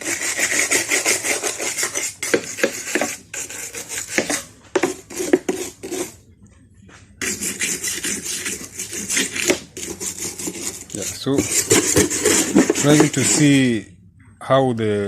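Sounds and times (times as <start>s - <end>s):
wire brush scrubbing metal: 0.0s - 6.1s, 7.2s - 13.7s.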